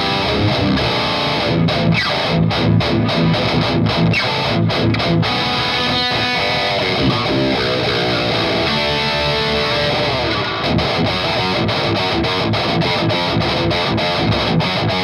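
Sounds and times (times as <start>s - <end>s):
distorted electric guitar riff: 0.0s - 15.0s.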